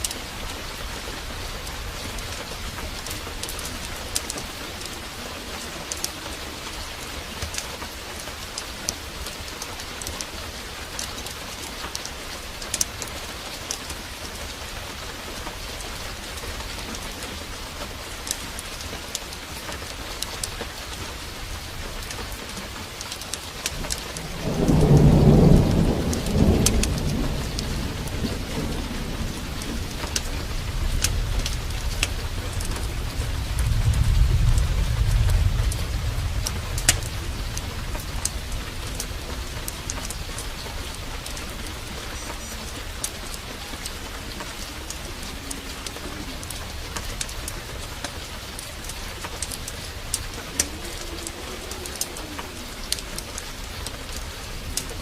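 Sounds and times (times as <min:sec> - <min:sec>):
heavy rain falling: 0:00.0 - 0:55.0
sharp crackles: 0:00.0 - 0:55.0
thunder rumbling: 0:00.0 - 0:55.0.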